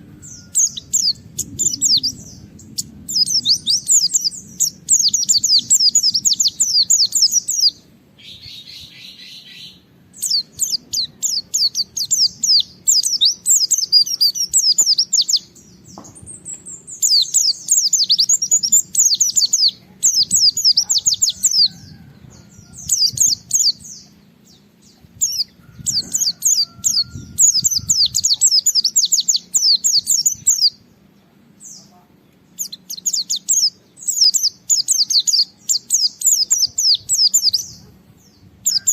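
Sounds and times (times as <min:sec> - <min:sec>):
bird singing high rapid notes: 0:00.0 - 0:30.9.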